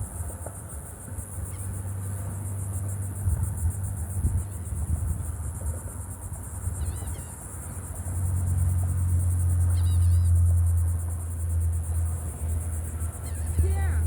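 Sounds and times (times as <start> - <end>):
high insect trill: 0.0 - 14.0.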